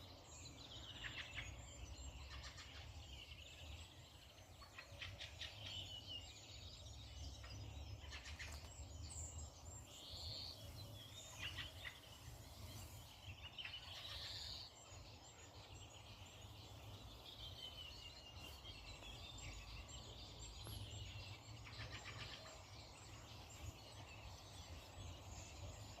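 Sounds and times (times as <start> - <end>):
wild birds calling and chirping: 0.0 - 26.0.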